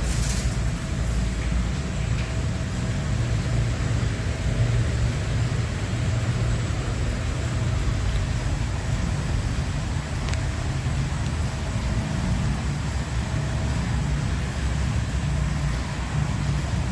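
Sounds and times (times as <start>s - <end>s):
car wash machinery rumbling: 0.0s - 16.9s.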